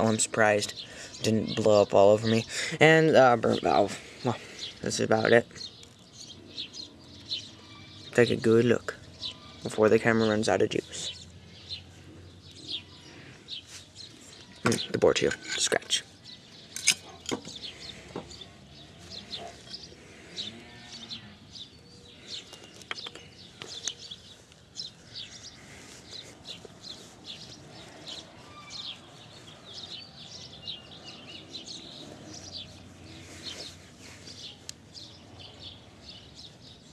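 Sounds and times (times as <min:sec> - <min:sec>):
small birds chirping: 0:00.0 - 0:36.9
sharp clicks: 0:22.4 - 0:24.0.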